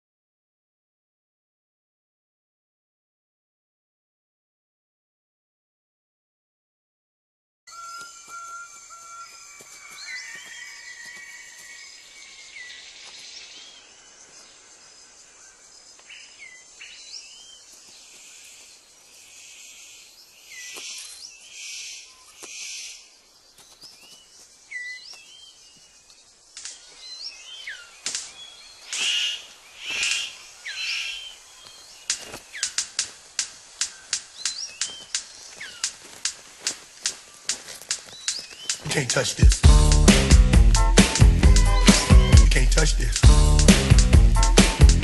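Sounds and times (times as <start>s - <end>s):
bird sharp clicks: 26.1s - 27.0s, 27.7s - 31.1s, 32.0s - 38.9s
bird whistles and rasping calls: 28.6s - 33.0s, 38.1s - 38.8s.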